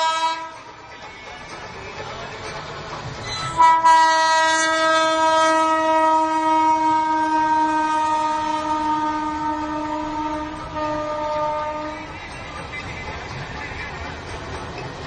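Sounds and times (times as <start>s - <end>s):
long steady horn blast: 3.6s - 12.1s.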